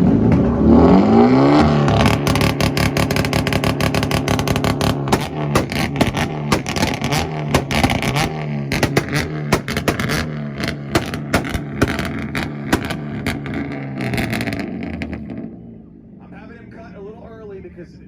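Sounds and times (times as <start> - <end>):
high-revving car engine: 0.0 - 16.0
exhaust pops and bangs: 1.9 - 15.2.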